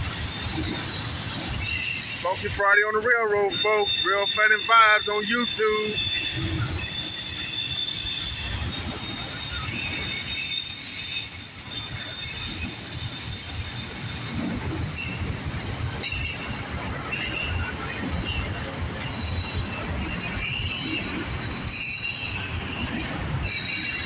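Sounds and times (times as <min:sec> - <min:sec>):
train wheels rumbling on rail: 0:00.0 - 0:24.0
high-pitched wheel squeal: 0:00.2 - 0:02.6, 0:03.3 - 0:15.3.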